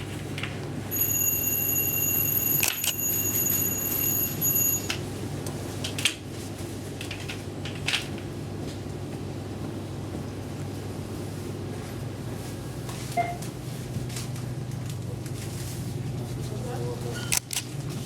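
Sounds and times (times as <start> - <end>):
high electronic tone: 0.9 - 5.0.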